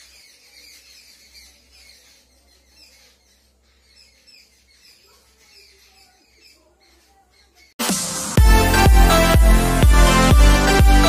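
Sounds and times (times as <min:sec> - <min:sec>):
faint bird chirping: 0:00.0 - 0:07.8.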